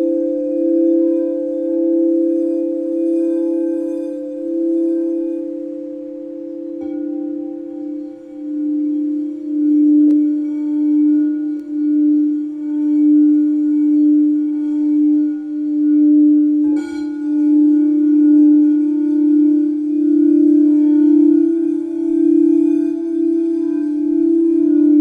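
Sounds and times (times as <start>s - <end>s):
singing bowl strike ringing: 0.0s - 25.0s
singing bowl sustained tone: 0.0s - 25.0s.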